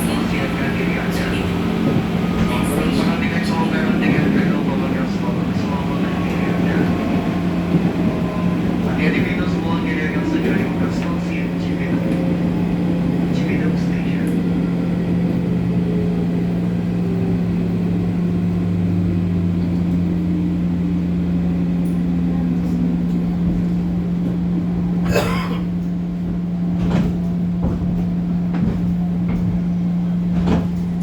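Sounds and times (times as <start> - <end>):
train traction motor whine: 0.0 - 31.0
sharp clacks and rattles: 25.8 - 31.0.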